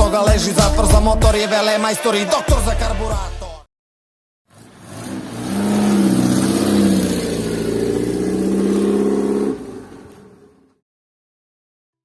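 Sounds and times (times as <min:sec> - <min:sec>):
car engine revving: 0:04.5 - 0:10.6.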